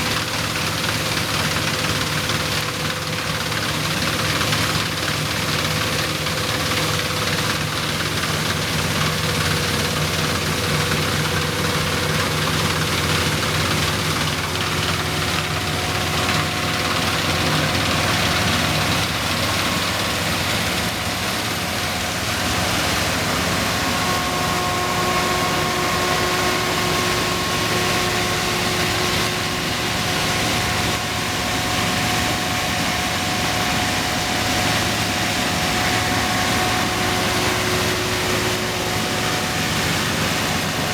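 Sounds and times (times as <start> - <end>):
combine harvester running: 0.0 - 40.9
machinery whining tones: 9.0 - 40.9.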